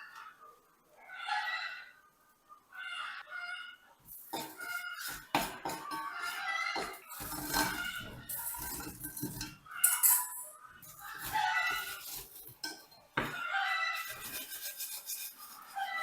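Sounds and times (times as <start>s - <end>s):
dishes and cutlery clinking: 4.1s - 16.0s.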